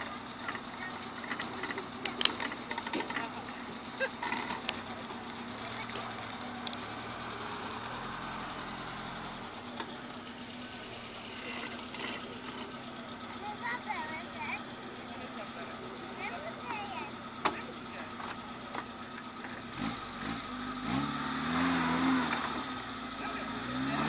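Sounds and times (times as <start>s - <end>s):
car engine at low revs: 0.0s - 24.0s
sharp clicks and knocks: 0.4s - 3.3s.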